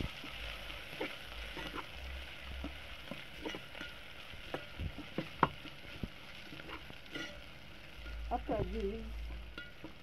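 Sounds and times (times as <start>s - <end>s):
vegetables sizzling in oil: 0.0s - 10.0s
metal spoon scraping pot: 0.9s - 2.0s, 3.1s - 5.8s, 6.4s - 8.2s.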